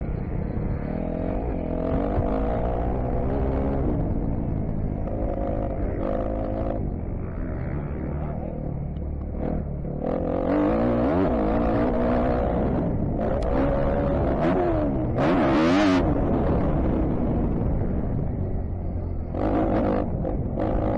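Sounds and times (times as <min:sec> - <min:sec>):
dirt bike engine revving: 0:09.3 - 0:17.8.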